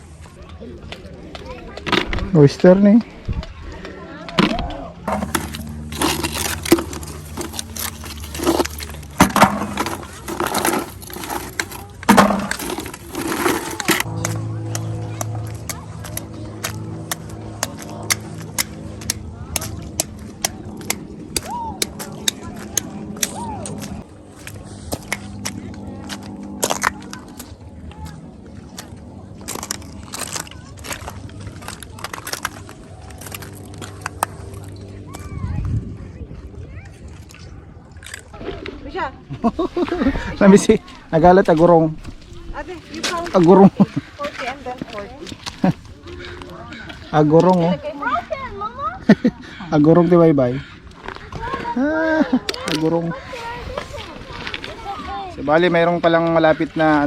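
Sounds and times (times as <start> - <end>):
low steady hum: 3.2 - 47.1
steady low rumble: 4.9 - 46.7
clam shells and gravel clacking: 5.1 - 34.8.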